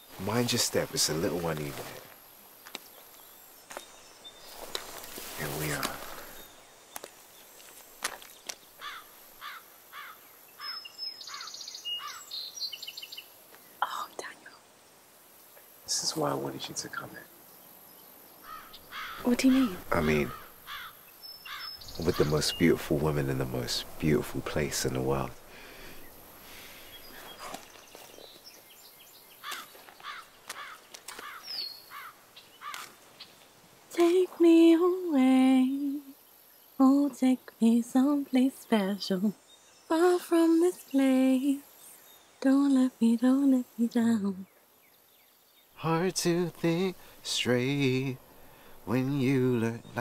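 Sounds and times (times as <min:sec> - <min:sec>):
faint bird chirps: 0:00.0 - 0:50.0
bird chirps and trills: 0:08.2 - 0:14.6, 0:16.9 - 0:33.5
bird rising-and-falling calls: 0:08.7 - 0:13.2.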